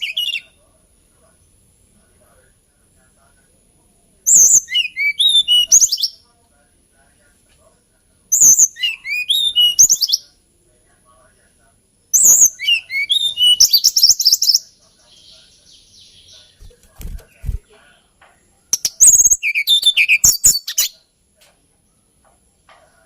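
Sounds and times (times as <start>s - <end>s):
bird singing warbled song: 0.0s - 0.6s, 4.3s - 6.2s, 8.3s - 10.4s, 12.1s - 17.9s, 18.7s - 21.1s.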